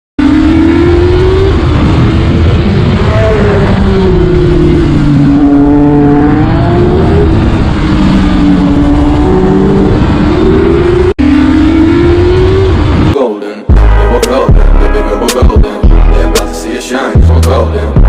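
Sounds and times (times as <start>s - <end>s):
steady rushing noise: 0.2s - 18.0s
vehicle engine running: 11.9s - 18.0s.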